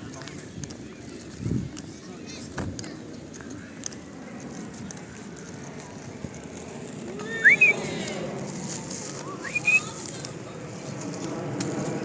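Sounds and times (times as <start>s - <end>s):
person whistling: 7.2s - 7.8s, 9.4s - 9.9s.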